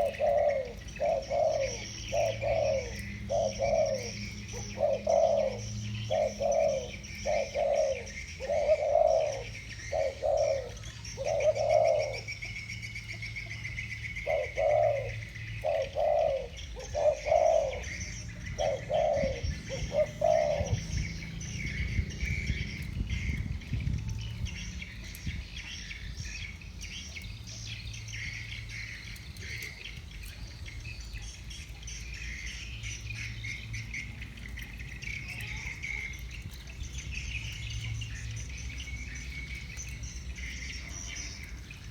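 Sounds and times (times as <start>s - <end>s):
doves cooing: 0.0s - 41.9s.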